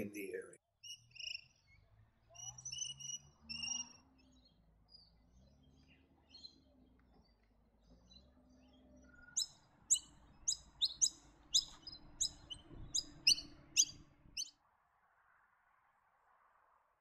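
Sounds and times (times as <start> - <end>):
bird calling with sharp notes: 9.0 - 14.5.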